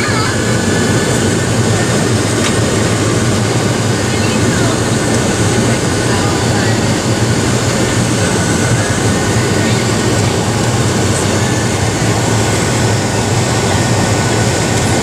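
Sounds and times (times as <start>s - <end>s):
jet engines roaring in cabin: 0.0s - 15.0s
low hum: 0.0s - 15.0s.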